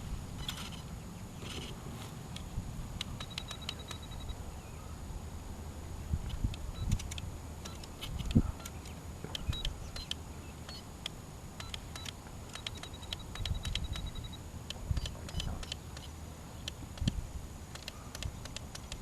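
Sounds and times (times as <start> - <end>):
small mechanical clicks and ticks: 2.3 - 4.3, 6.2 - 19.0.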